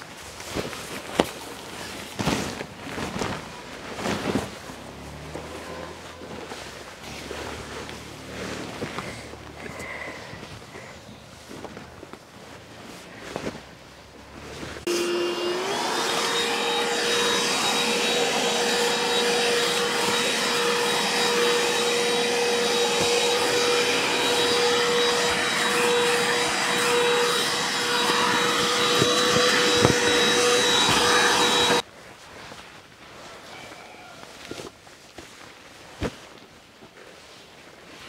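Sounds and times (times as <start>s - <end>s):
electric fan whining: 14.8s - 31.8s.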